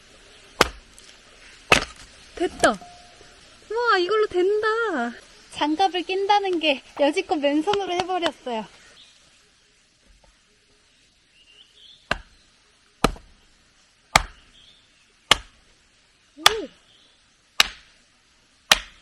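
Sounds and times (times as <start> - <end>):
strikes splitting firewood: 0.6 - 2.8, 12.1 - 12.3, 13.0 - 13.4, 14.1 - 14.4, 15.3 - 15.6, 17.6 - 17.9, 18.7 - 19.0.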